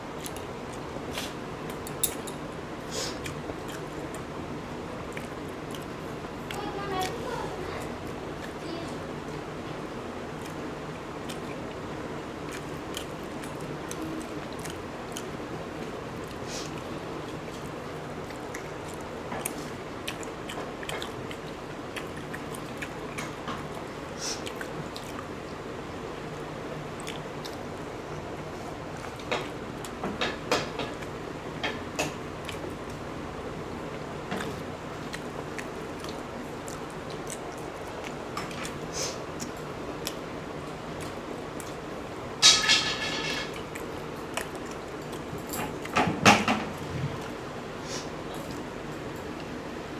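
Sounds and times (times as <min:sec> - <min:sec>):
people chewing eggs: 0:00.0 - 0:42.3, 0:43.4 - 0:49.9
steady background hum: 0:00.0 - 0:49.9
wet mouth clicks: 0:27.0 - 0:27.6, 0:34.4 - 0:40.2.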